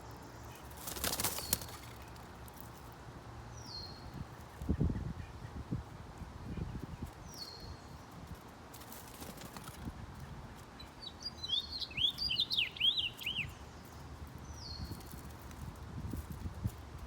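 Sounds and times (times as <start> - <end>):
warbled bird song: 0.0 - 2.3, 3.5 - 5.7, 6.4 - 8.2, 9.8 - 15.5.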